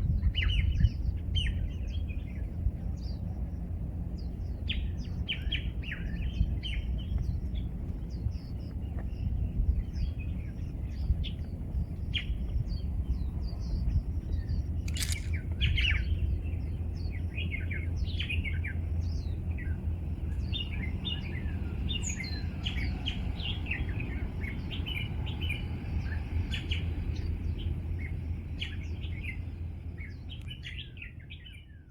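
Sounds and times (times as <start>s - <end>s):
low rumble: 0.0s - 22.5s
songbirds chirping: 0.0s - 31.9s
brief crackle: 14.8s - 15.4s.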